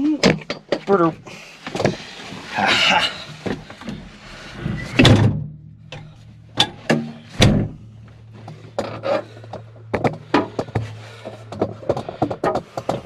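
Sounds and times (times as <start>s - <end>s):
steady low hum: 1.2s - 13.0s
sharp thunks and knocks: 5.0s - 7.9s.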